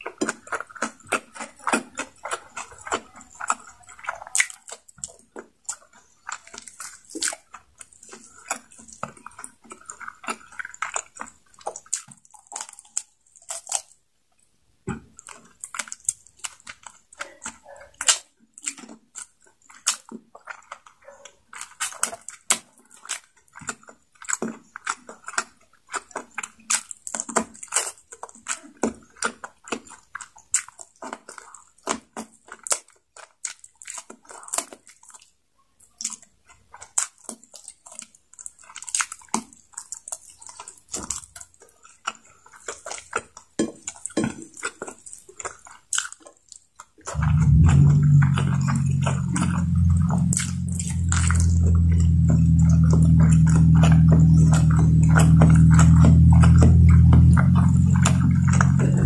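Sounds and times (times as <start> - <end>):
wet chewing smacks: 0.0 - 14.0, 15.2 - 35.3, 36.0 - 59.0
mouth clicks: 47.1 - 59.0.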